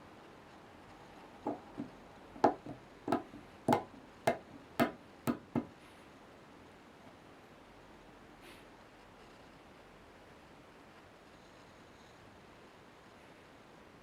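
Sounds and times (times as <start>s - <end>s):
light metal knocks ringing: 1.5s - 5.7s.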